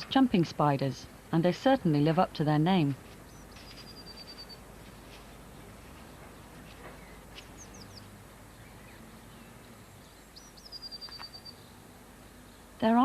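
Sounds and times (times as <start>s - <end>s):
faint garden ambience: 0.0s - 13.0s
small bird chirping: 3.2s - 4.6s, 6.3s - 11.8s.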